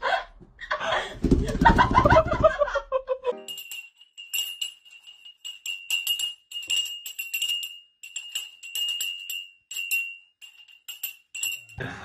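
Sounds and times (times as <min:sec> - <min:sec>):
small jingle bell jingling: 0:03.3 - 0:12.0.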